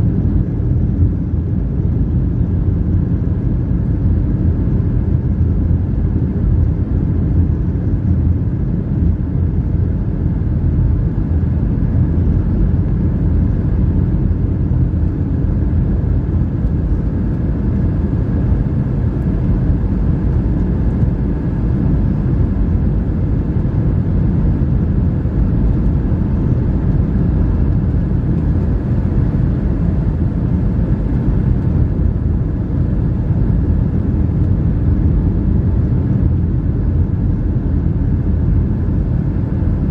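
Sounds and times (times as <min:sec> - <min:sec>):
airliner cabin rumble: 0:00.0 - 0:39.9
faint steady hum: 0:00.0 - 0:39.9.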